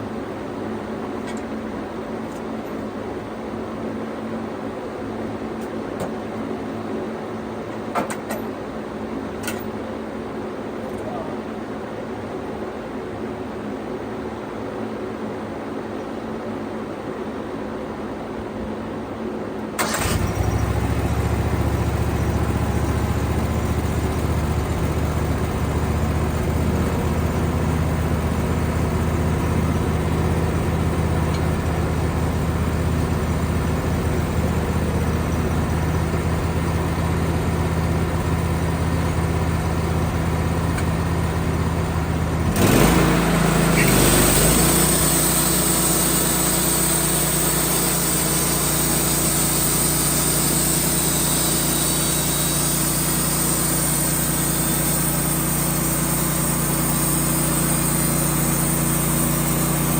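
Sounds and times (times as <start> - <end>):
sawmill engine running: 19.8 - 59.9.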